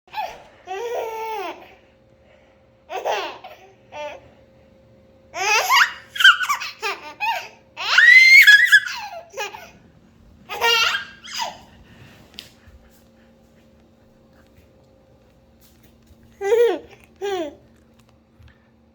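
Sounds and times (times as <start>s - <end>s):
baby laughing: 0.1s - 1.8s, 2.9s - 4.2s, 5.4s - 9.8s, 10.5s - 11.7s, 16.4s - 17.6s.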